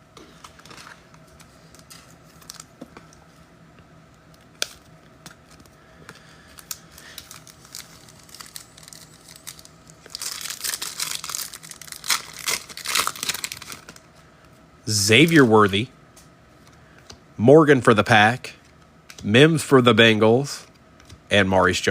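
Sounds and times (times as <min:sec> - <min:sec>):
card wrapper tearing and crinkling: 0:01.7 - 0:02.7, 0:04.6 - 0:05.7, 0:06.6 - 0:14.0.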